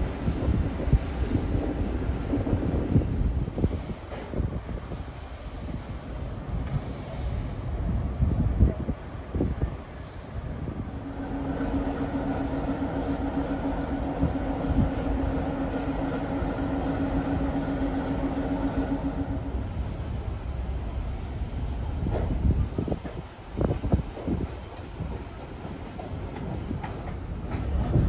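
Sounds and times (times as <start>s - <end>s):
train cars rumbling past: 0.0s - 28.0s
steady hum: 10.8s - 22.0s.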